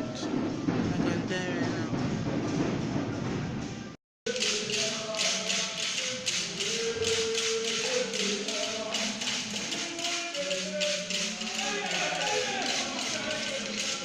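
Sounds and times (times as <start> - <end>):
rhythmic beat: 0.0 - 14.0
group of voices chanting: 4.4 - 14.0.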